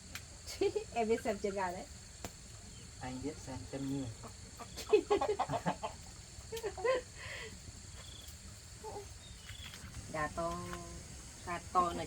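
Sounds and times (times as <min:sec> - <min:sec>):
chicken squawking and clucking: 0:04.2 - 0:06.2.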